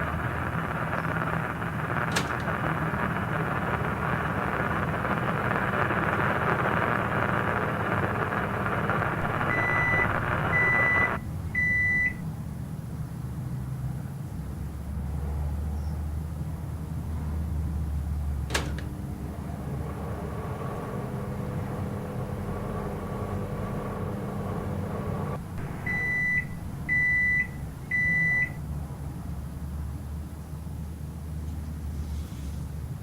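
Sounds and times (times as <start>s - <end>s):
microwave oven humming: 0.0s - 14.4s, 15.1s - 31.4s
microwave oven click: 0.1s - 12.3s, 18.2s - 28.6s
microwave beeps: 0.1s - 12.4s, 18.5s - 28.7s.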